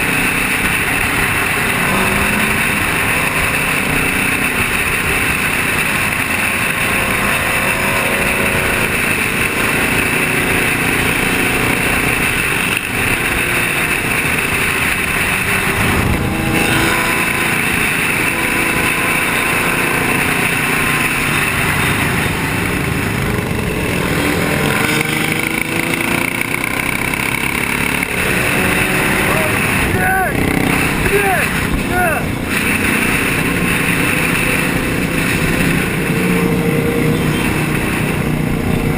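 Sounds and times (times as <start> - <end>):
road noise: 0.0 - 38.9
vehicle engine running: 0.0 - 38.9.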